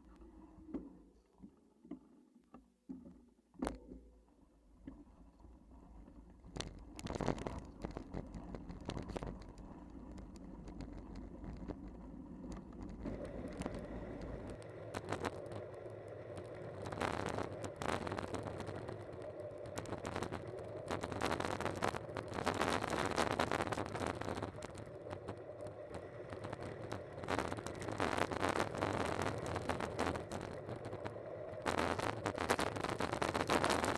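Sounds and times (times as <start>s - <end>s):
steady hum: 13.0s - 33.9s.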